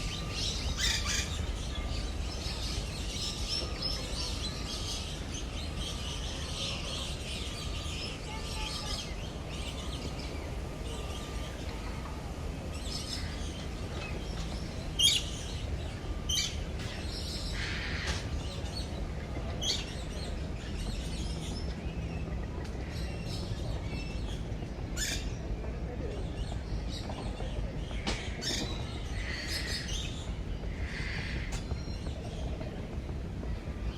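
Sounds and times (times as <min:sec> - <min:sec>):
birds chirping and calling: 0:00.0 - 0:11.2, 0:12.7 - 0:25.5, 0:26.3 - 0:32.6
steady low rumble: 0:00.0 - 0:33.9.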